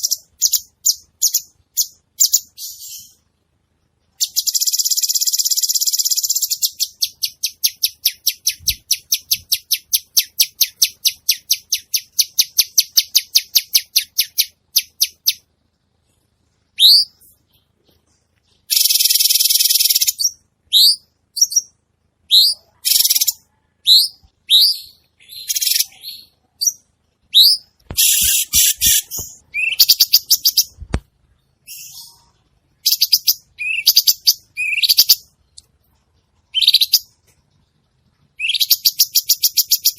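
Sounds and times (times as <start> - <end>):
bird singing: 0.0 - 3.2, 16.7 - 30.8, 31.4 - 37.8, 38.4 - 39.9.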